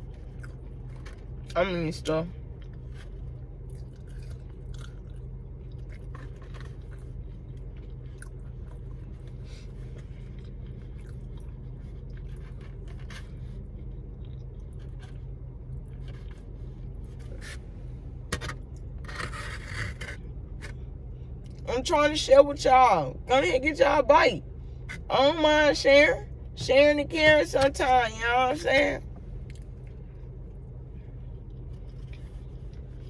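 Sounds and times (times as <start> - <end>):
person chewing: 0.0 - 1.5, 2.5 - 17.4, 29.4 - 33.0
steady low hum: 0.0 - 33.0
rustling scrape: 18.4 - 20.8.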